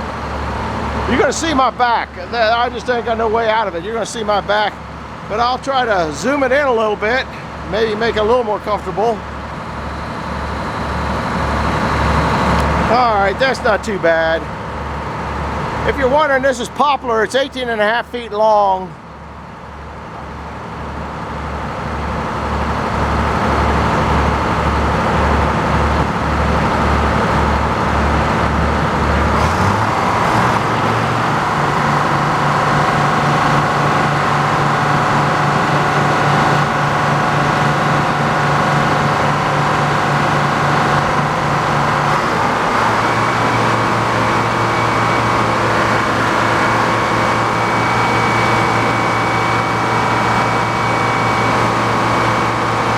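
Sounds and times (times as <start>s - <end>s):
sawmill sawing a log: 9.5s - 12.9s, 29.2s - 52.9s.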